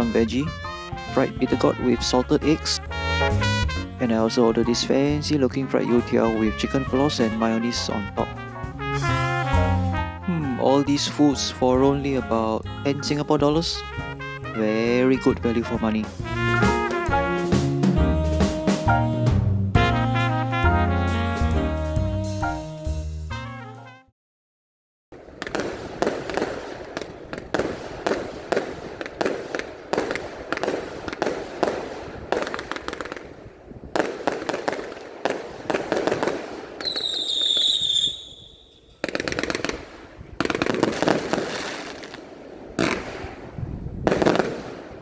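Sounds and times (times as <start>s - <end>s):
fireworks bangs and crackles: 15.2s - 18.8s, 25.2s - 45.0s
high firework whistle: 36.0s - 39.6s.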